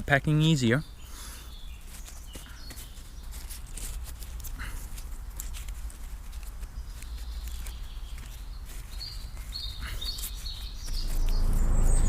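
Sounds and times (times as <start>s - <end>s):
low engine rumble of traffic: 0.0s - 12.0s
birds chirping: 0.2s - 3.7s, 6.6s - 12.0s.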